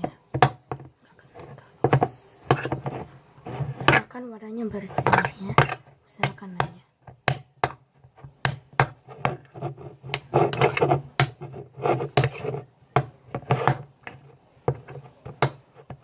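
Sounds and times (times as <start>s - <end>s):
scraping in container: 1.2s - 4.2s, 9.0s - 12.7s.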